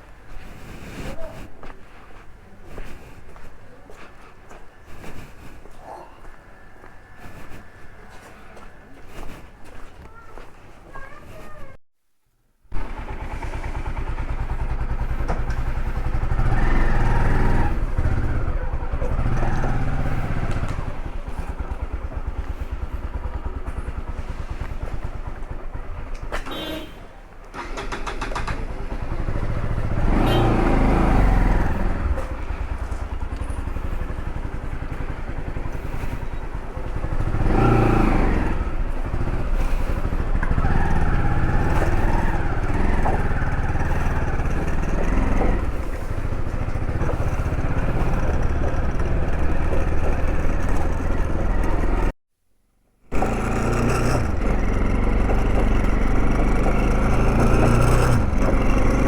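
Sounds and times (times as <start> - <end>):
motorcycle engine running: 12.7 - 52.2, 53.1 - 59.0.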